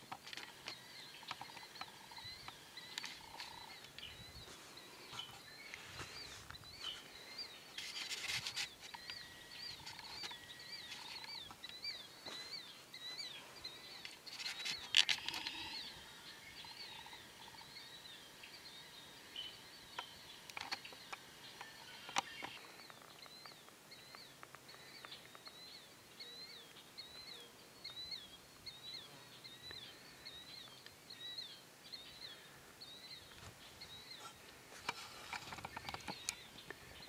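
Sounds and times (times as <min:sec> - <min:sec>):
faint outdoor ambience: 0:00.0 - 0:37.0
small bird chirping: 0:00.0 - 0:37.0.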